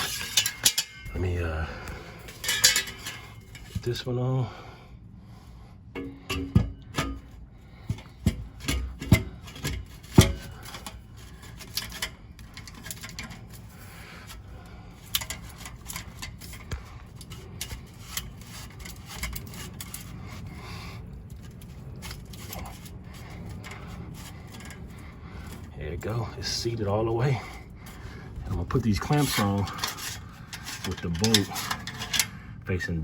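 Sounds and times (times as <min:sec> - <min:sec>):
metal scraping and rubbing: 0:00.0 - 0:04.0, 0:06.0 - 0:32.4
sharp metal knocks: 0:06.0 - 0:07.3.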